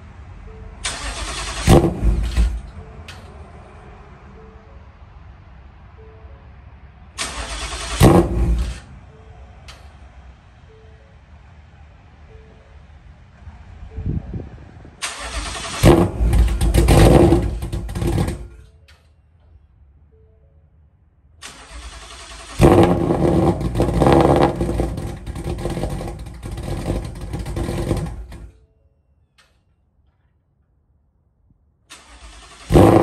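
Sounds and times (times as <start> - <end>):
car engine starting and running rough: 0.8 - 3.2, 7.2 - 8.9, 15.0 - 18.7, 21.4 - 28.5, 31.9 - 33.0.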